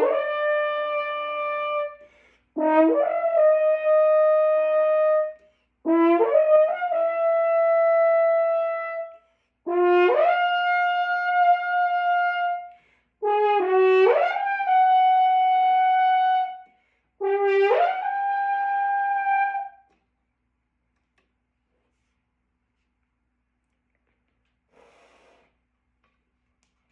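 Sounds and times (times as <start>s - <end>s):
brass instrument long tones: 0.0s - 19.9s.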